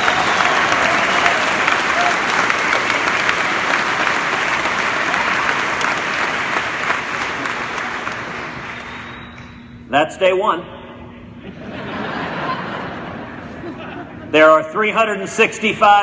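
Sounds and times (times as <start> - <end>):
crowd applauding: 0.0 - 9.7.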